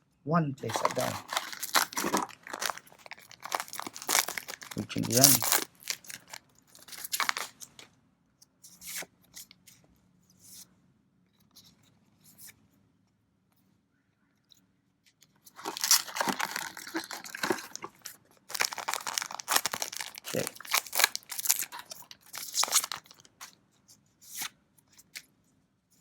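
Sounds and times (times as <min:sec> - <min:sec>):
cards rustling and flicking: 0:00.6 - 0:07.8, 0:15.6 - 0:23.5
foil wrapper crinkling and tearing: 0:00.6 - 0:07.8, 0:15.5 - 0:23.5.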